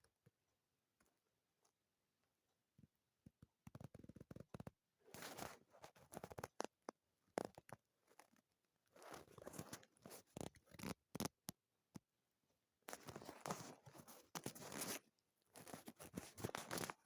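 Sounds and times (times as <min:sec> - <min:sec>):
paper rustling and scraping: 0:13.0 - 0:15.0, 0:15.6 - 0:17.0.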